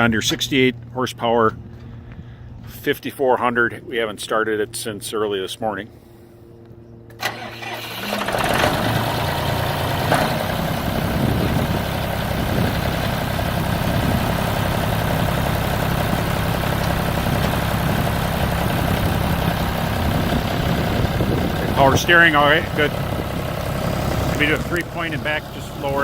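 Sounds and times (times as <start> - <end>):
tractor diesel engine starting and idling: 7.1 - 26.0.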